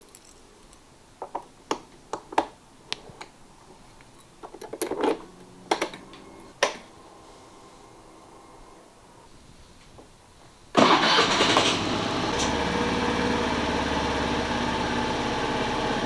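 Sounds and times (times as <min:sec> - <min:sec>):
scooter clicks and knocks: 0:04.4 - 0:07.0.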